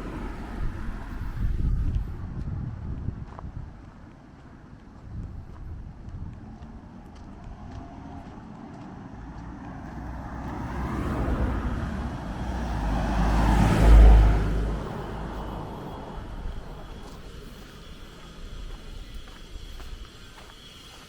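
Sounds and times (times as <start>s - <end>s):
car driving past: 0.0s - 1.7s, 7.5s - 19.8s.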